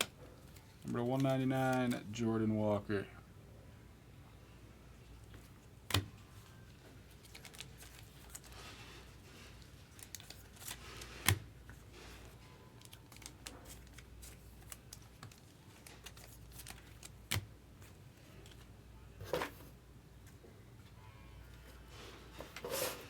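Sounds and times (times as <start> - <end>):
cards sliding and scratching: 22.6 - 23.0.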